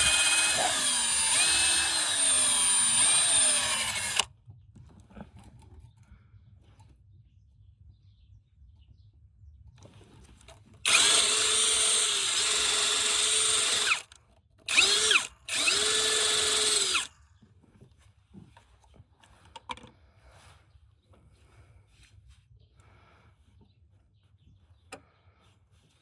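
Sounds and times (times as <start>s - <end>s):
electric drill whirring: 0.0s - 4.3s, 10.9s - 17.1s.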